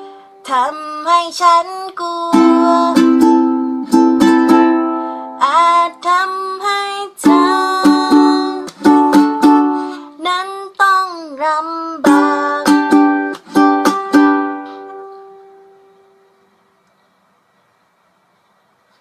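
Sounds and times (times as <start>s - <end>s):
strummed string instrument chords: 2.4s - 5.5s, 12.0s - 16.2s.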